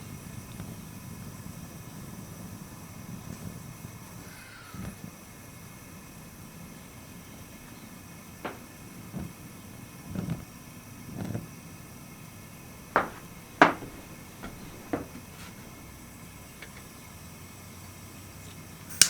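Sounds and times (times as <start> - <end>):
knocks and clicks: 8.5 - 8.7, 13.0 - 15.7
dull thump: 8.5 - 8.8, 13.0 - 15.8.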